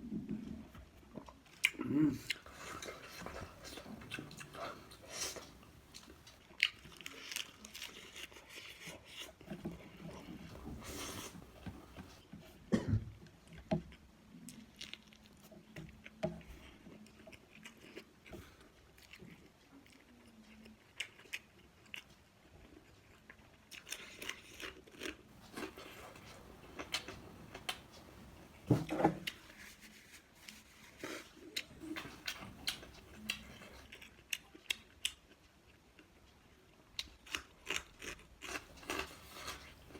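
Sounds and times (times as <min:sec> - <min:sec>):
person chewing food: 0:00.4 - 0:12.6, 0:13.4 - 0:39.9
food crunching: 0:01.2 - 0:12.2, 0:18.9 - 0:36.2, 0:36.9 - 0:39.9.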